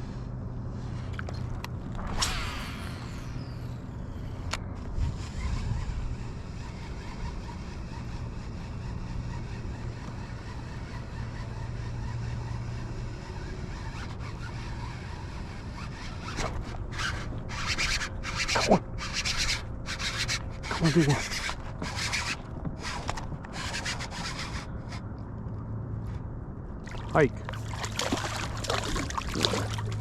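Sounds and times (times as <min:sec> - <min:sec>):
low steady hum: 0:00.0 - 0:13.9, 0:14.8 - 0:30.0
fishing reel buzzing: 0:02.1 - 0:25.0.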